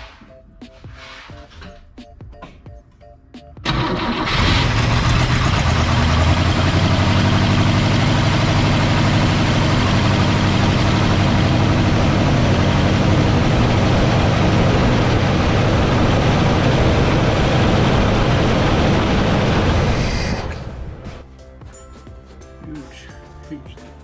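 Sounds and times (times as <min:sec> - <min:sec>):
car engine running: 0:03.6 - 0:21.3.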